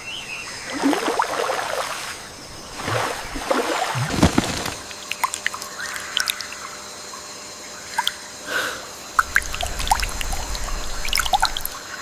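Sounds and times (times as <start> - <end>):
low rumble: 9.3 - 11.8.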